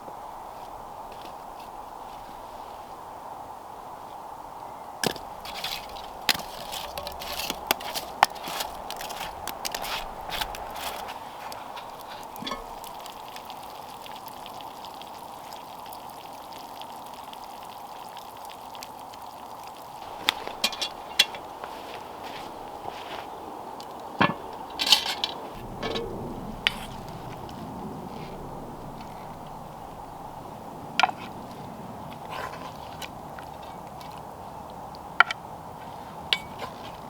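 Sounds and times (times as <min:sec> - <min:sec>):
campfire hissing: 0:00.0 - 0:33.5
fire crackling: 0:05.1 - 0:34.4.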